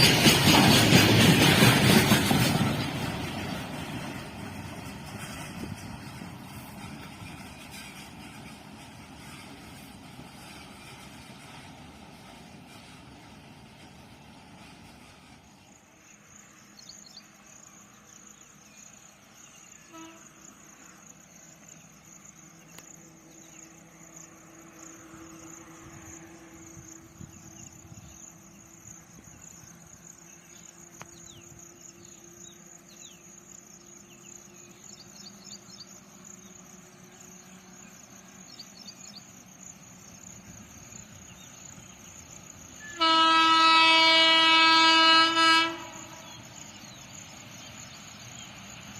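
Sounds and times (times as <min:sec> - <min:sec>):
insects chirping: 0:00.0 - 0:48.9
locomotive horn blaring: 0:19.8 - 0:20.4, 0:42.8 - 0:46.2.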